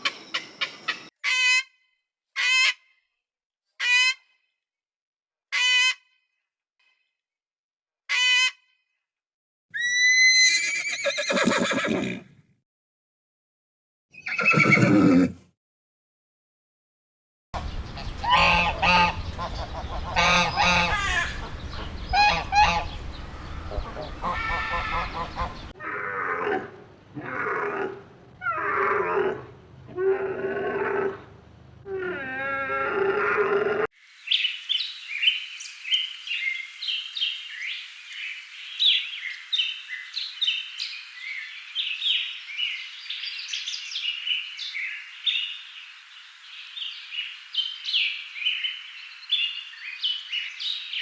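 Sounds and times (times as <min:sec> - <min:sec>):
animal crying: 0:09.8 - 0:12.2, 0:14.2 - 0:15.4, 0:17.6 - 0:26.6, 0:31.8 - 0:33.9
horse neighing: 0:09.8 - 0:12.3, 0:14.2 - 0:15.4
high honk-like call: 0:17.6 - 0:25.7.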